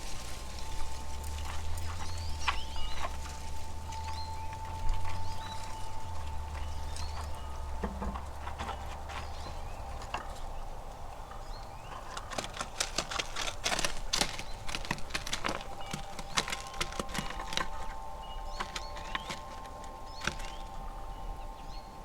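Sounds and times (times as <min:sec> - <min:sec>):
squirrels gnawing and scrabbling: 0:00.0 - 0:22.0.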